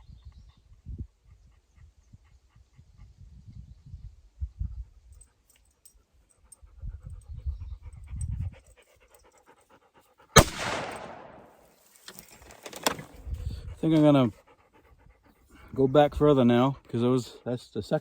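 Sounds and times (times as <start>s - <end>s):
dog panting: 1.2s - 3.3s, 5.2s - 10.4s, 13.2s - 17.5s
rifle shot: 10.4s - 11.6s.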